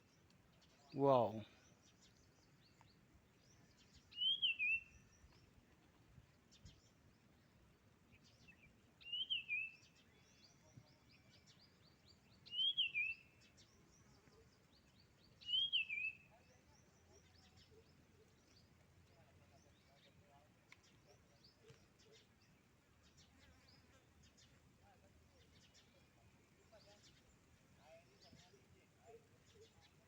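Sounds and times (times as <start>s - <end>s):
songbird whistled phrase: 4.2s - 5.0s, 12.5s - 13.3s, 15.4s - 16.3s.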